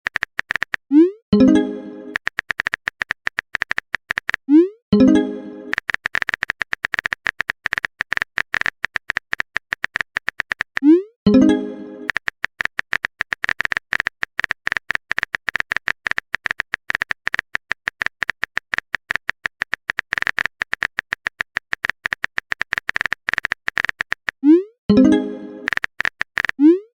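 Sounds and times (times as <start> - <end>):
text typing clicking blips: 0.0 - 26.9.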